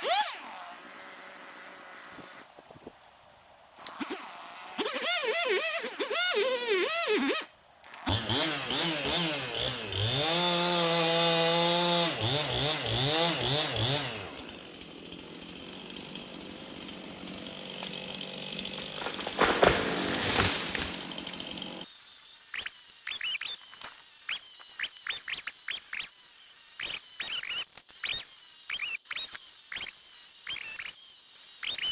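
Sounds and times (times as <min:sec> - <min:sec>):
chainsaw engine revving: 0:00.0 - 0:02.5, 0:03.8 - 0:21.9, 0:22.5 - 0:31.9.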